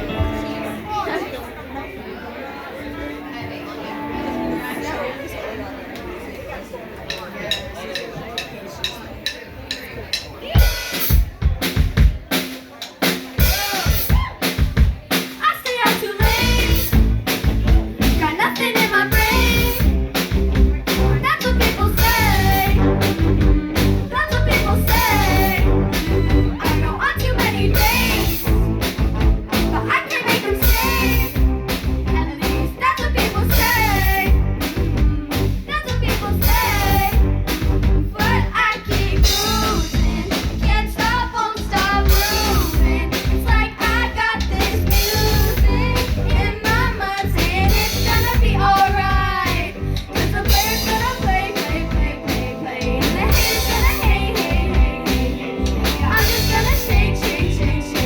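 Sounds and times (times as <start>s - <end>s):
live rock band playing: 0.0s - 1.5s, 2.8s - 5.2s, 8.4s - 58.0s
singer's voice: 15.4s - 58.0s.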